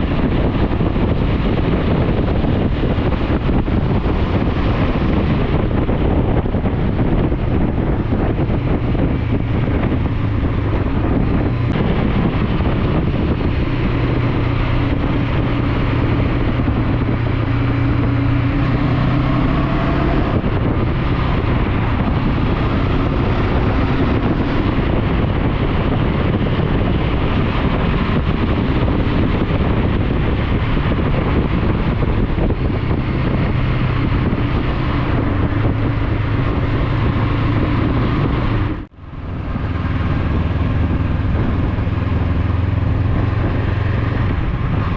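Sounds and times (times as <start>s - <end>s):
motorcycle engine running: 0.0s - 44.9s
wind rushing over microphone: 0.0s - 44.9s.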